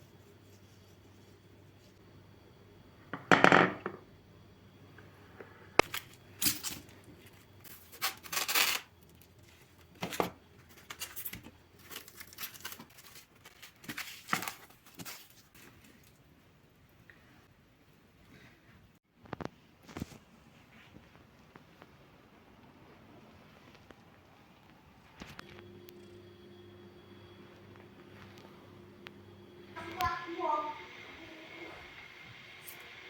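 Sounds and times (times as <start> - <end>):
scraping or tearing noises: 7.7 - 9.3, 10.7 - 16.2.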